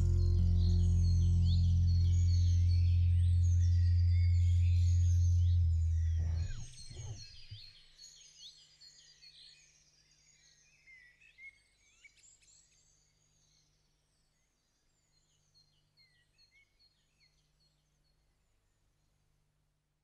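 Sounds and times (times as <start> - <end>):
low music note: 0.0 - 7.2.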